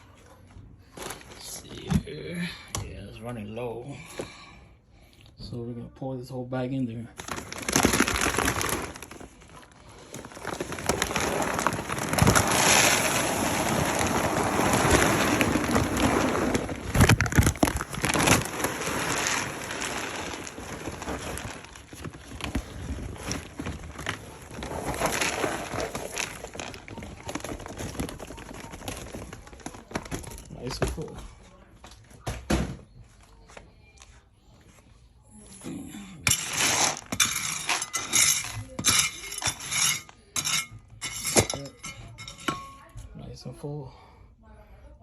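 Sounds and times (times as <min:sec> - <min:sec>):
dry kibble pouring into container: 0:07.2 - 0:30.8, 0:36.3 - 0:39.7.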